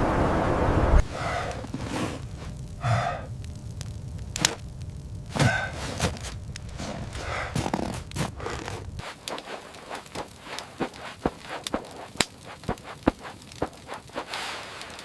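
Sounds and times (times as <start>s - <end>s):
wind noise: 0.0s - 9.0s
person breathing heavily: 1.0s - 3.4s, 5.3s - 11.7s.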